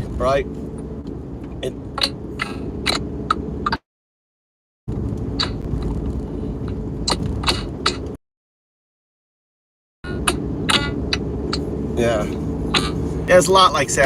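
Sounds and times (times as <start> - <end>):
car cabin engine and road rumble: 0.0 - 3.8, 4.9 - 8.2, 10.0 - 14.0.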